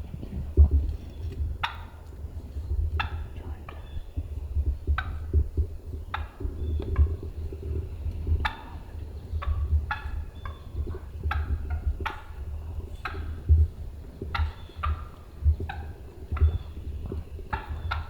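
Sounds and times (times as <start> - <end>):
low thumps: 0.0 - 1.7, 4.2 - 8.8
wild turkey calls: 1.2 - 2.2, 3.0 - 18.0.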